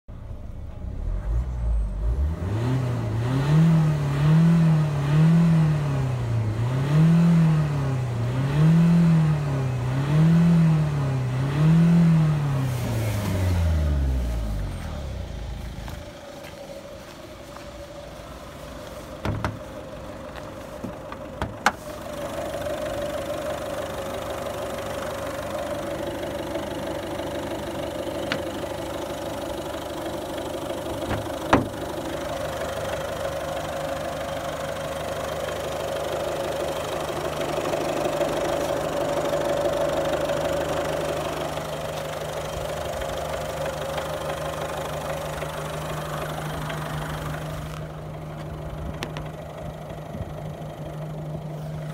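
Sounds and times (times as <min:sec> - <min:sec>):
diesel engine idling: 0:03.9 - 0:51.9
sharp knocks: 0:19.2 - 0:19.6, 0:31.1 - 0:31.8.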